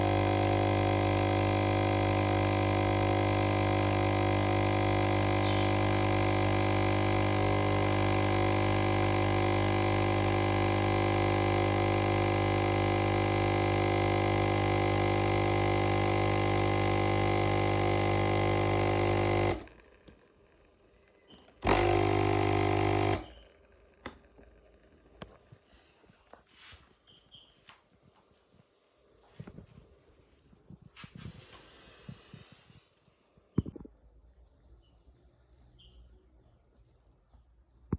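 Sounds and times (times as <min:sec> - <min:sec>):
espresso machine pump buzzing: 0:00.0 - 0:20.2, 0:21.0 - 0:25.4.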